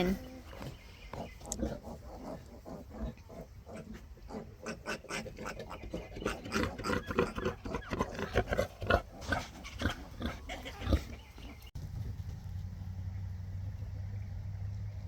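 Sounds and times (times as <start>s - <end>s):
pigs grunting: 0.0s - 11.6s.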